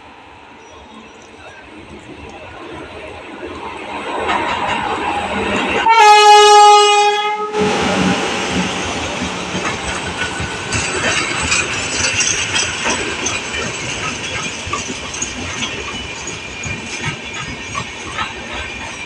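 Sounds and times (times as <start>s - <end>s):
train coaches rolling past: 0.0s - 19.0s
locomotive horn blast: 5.8s - 8.6s.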